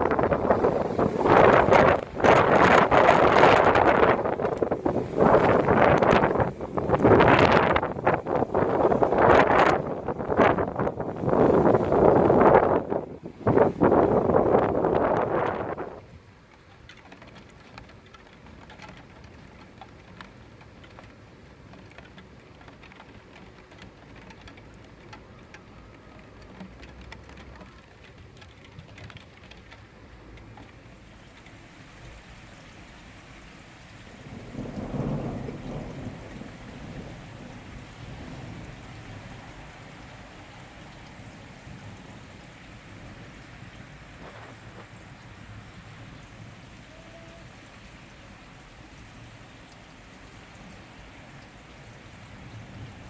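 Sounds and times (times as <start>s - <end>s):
thunder rumbling: 0.0s - 16.0s, 31.3s - 53.0s
raindrops ticking: 0.0s - 53.0s
steady rain falling: 0.0s - 53.0s.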